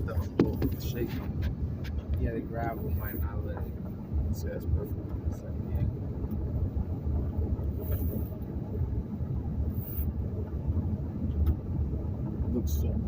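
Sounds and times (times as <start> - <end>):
car rumbling on gravel road: 0.0 - 13.0
brief hisses: 7.8 - 8.4.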